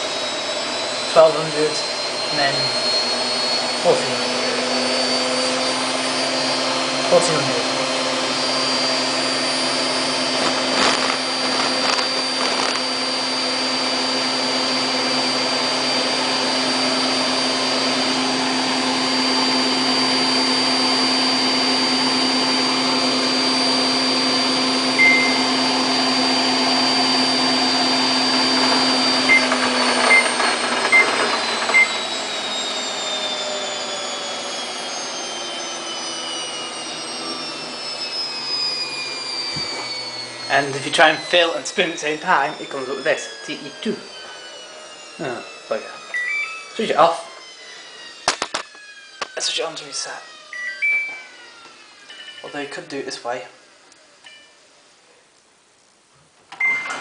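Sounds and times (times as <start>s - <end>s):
washing machine spinning: 24.0s - 41.4s, 44.0s - 48.2s, 56.5s - 57.0s
short beeps: 25.0s - 25.5s, 50.5s - 51.3s, 56.6s - 57.0s.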